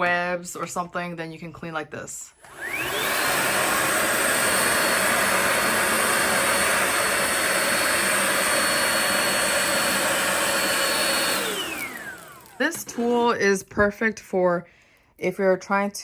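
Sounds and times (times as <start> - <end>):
vacuum motor spinning down: 2.4 - 13.4
stick vacuum whining: 2.4 - 13.6.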